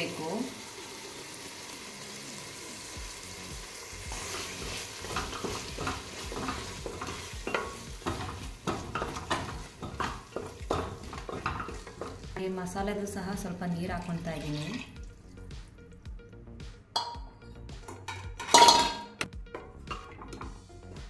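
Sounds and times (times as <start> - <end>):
paste sizzling in hot oil: 0.0 - 12.5
wooden spatula scraping pot: 4.3 - 12.5.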